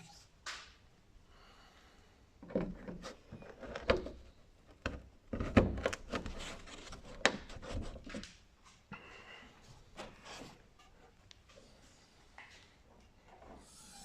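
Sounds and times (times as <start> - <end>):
rubbing and scraping: 5.3 - 8.3.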